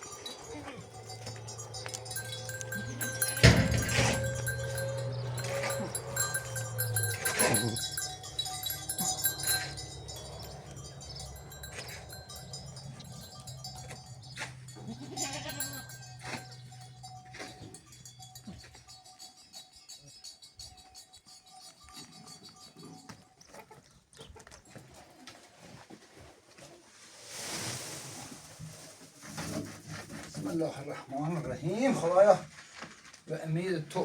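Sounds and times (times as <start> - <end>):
farm animals bleating: 0.0 - 17.8
knocks and clinks: 0.0 - 23.2.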